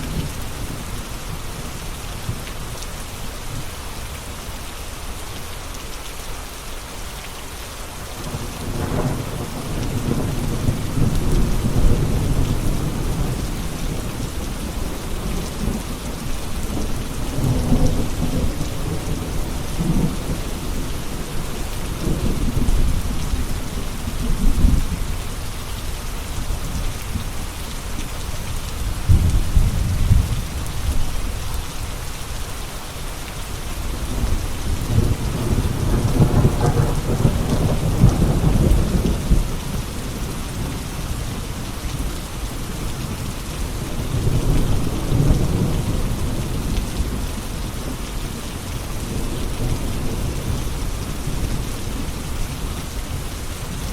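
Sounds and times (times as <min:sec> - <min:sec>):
steady rain: 0:00.0 - 0:53.9
thunder rumbling: 0:28.8 - 0:31.1, 0:34.0 - 0:41.4.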